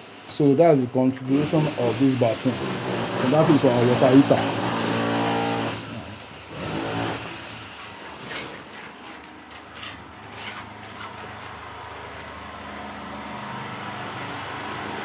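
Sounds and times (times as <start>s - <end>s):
footsteps scuffing on concrete: 8.7s - 12.8s.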